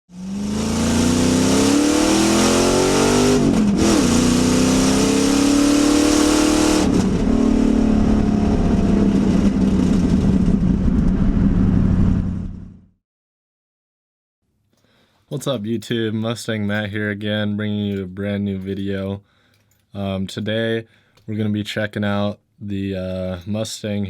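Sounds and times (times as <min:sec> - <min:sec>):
car engine accelerating hard: 0:00.1 - 0:12.8.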